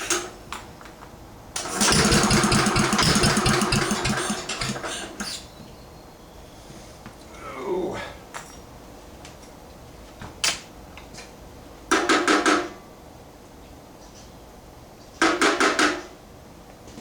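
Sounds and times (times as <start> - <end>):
rapid knocks: 1.7 - 5.2.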